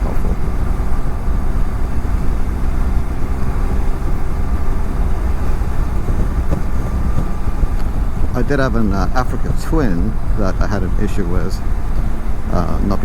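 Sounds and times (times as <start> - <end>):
wind rush on helmet: 0.0 - 10.4
motorcycle engine drone: 0.0 - 13.0.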